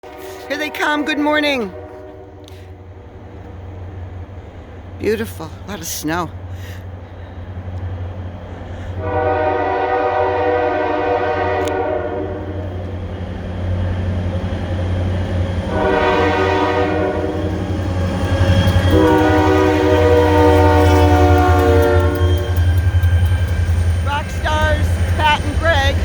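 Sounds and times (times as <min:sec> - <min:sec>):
train air horn blasts: 0:00.0 - 0:02.8, 0:09.0 - 0:12.7, 0:15.7 - 0:17.6, 0:18.4 - 0:23.1
low engine rumble: 0:17.2 - 0:26.0.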